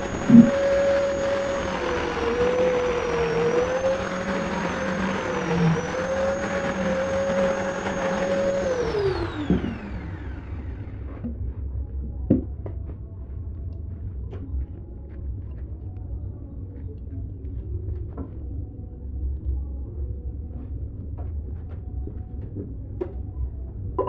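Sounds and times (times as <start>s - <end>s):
power tool whining: 0.0s - 11.2s.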